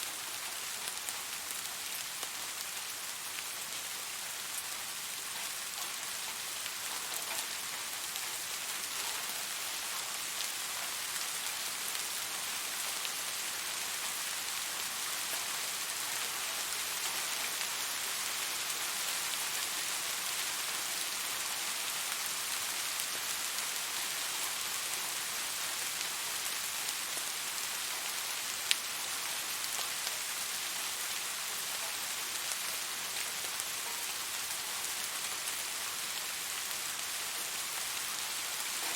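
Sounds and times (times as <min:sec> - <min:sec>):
steady rain hiss: 0:00.0 - 0:38.9
rain drop ticks: 0:05.3 - 0:12.1, 0:27.9 - 0:30.3, 0:37.9 - 0:38.9.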